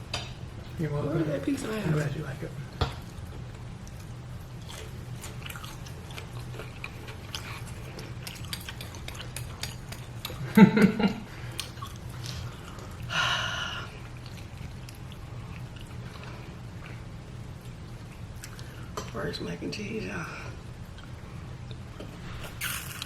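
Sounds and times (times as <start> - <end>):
chewing crisp fried chicken: 3.0 - 13.2, 13.9 - 19.2.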